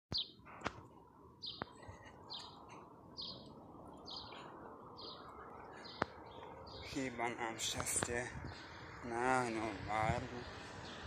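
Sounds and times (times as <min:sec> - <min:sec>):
bird chirping: 0:00.1 - 0:00.5, 0:01.4 - 0:09.6.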